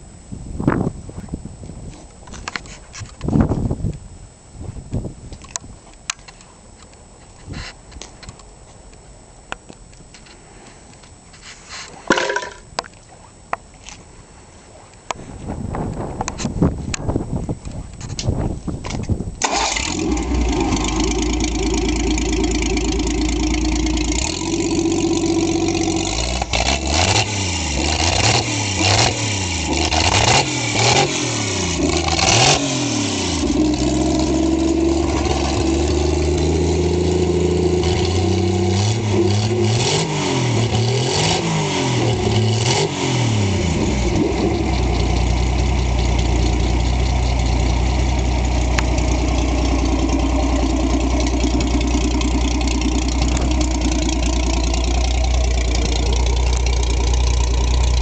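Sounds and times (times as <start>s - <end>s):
engine idling and revving: 19.4s - 58.0s.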